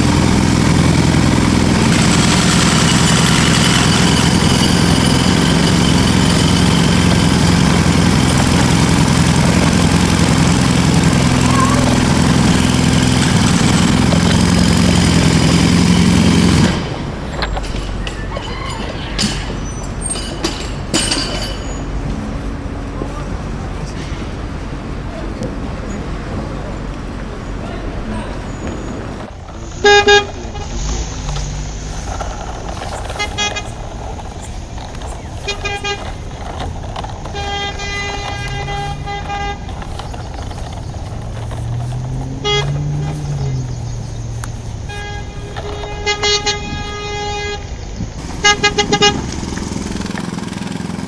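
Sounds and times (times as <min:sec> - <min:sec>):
vehicle horn honking: 0:00.0 - 0:16.9, 0:27.9 - 0:50.6
motor humming: 0:00.0 - 0:18.5
engine rumble: 0:00.0 - 0:51.0.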